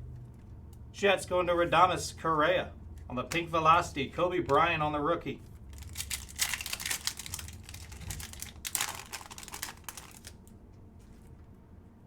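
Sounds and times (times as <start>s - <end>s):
cards being flipped through: 5.8s - 11.3s.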